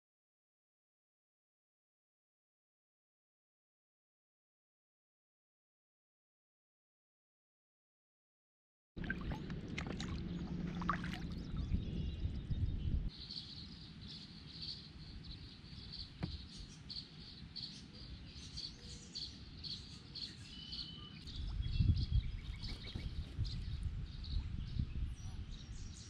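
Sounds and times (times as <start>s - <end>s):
low rumble: 9.0s - 13.1s
birds chirping: 9.0s - 26.0s.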